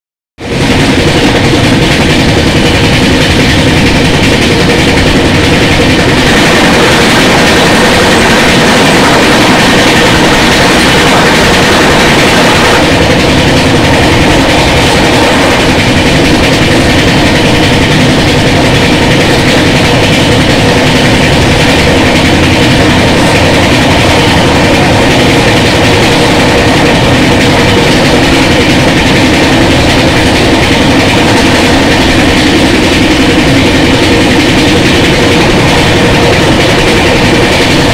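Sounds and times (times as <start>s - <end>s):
train wheel and track noise: 0.4s - 37.9s
passing train hiss: 0.5s - 37.9s
steady tone: 0.5s - 37.9s.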